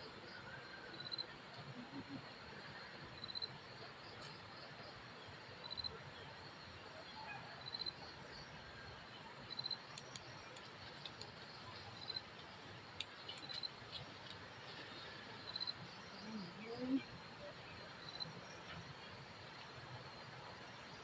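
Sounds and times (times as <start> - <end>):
low background hiss: 0.0 - 21.0
insect chirping: 0.3 - 2.1, 3.1 - 4.6, 5.6 - 6.6, 7.6 - 8.5, 9.4 - 18.7
faint clicks: 9.9 - 14.5.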